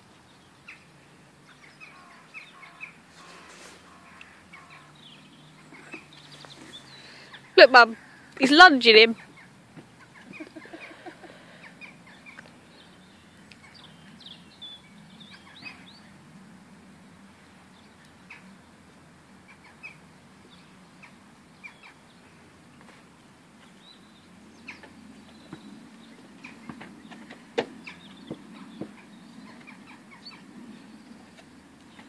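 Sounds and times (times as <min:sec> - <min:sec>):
birds chirping: 0:00.0 - 0:32.0
faint steady background noise: 0:00.0 - 0:32.0.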